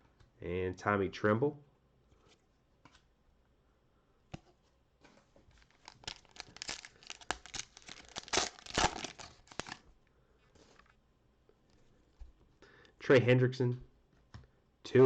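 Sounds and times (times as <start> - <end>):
wrapper tearing and crinkling: 5.6 - 9.8.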